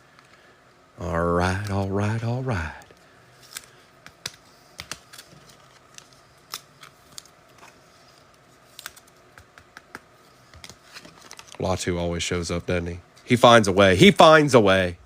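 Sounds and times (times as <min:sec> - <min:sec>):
cards clicking and tapping on table: 0:09.3 - 0:10.8.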